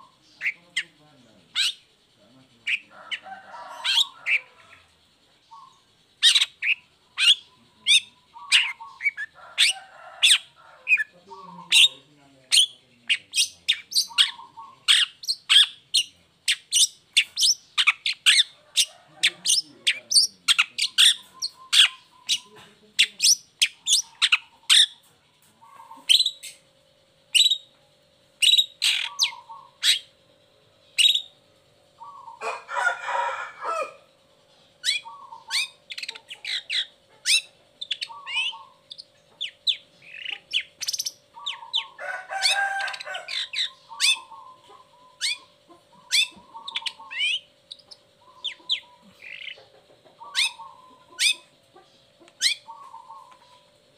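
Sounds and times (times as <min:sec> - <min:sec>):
bird harsh rasping call: 0:02.6 - 0:04.9, 0:05.5 - 0:25.0, 0:28.4 - 0:30.2, 0:32.0 - 0:34.1, 0:34.8 - 0:51.6.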